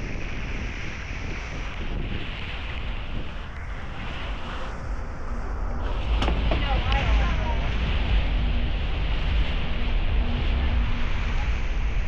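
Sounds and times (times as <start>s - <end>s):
steady rushing hiss: 0.0s - 12.0s
wind rumbling on microphone: 0.0s - 12.0s.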